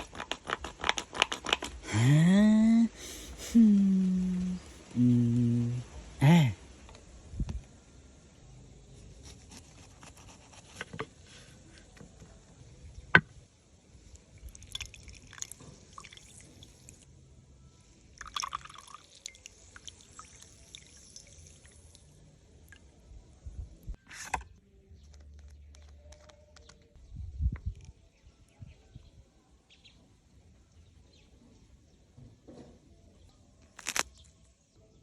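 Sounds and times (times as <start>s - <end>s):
water dripping and trickling: 14.2s - 17.1s, 18.2s - 22.8s.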